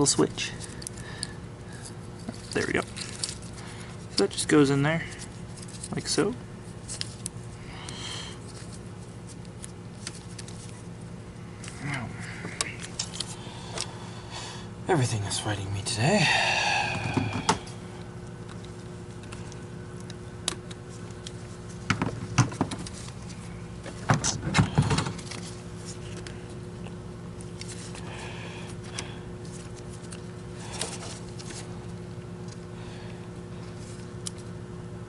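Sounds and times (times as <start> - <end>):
steady low hum: 0.0 - 35.0
vacuum parts clicking and clattering: 23.8 - 25.4.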